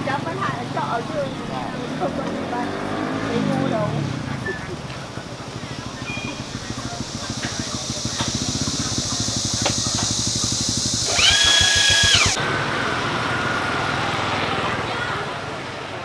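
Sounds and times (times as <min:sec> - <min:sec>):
motorbike engine running: 0:02.4 - 0:12.7.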